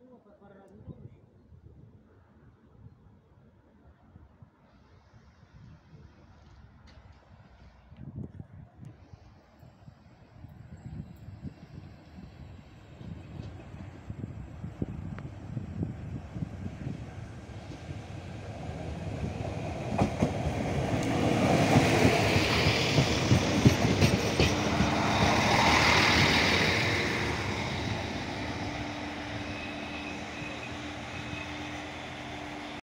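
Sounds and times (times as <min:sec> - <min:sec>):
train wheels clattering: 0:19.8 - 0:27.3.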